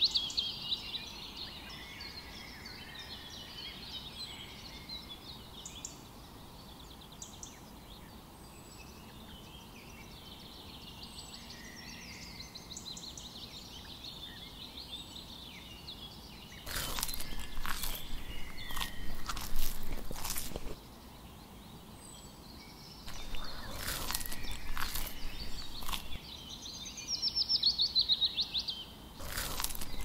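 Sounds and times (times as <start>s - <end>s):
songbirds chirping and trilling: 0.0s - 30.0s
toy crunching on gravel: 16.7s - 20.8s, 23.1s - 26.2s, 29.2s - 30.0s.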